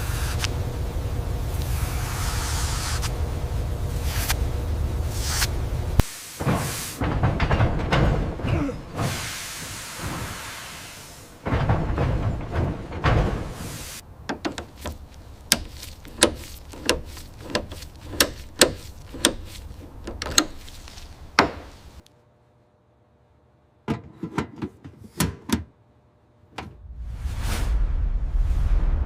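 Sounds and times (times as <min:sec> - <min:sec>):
low hum: 0:00.0 - 0:06.1
sharp irregular knocks and clicks: 0:14.2 - 0:21.8.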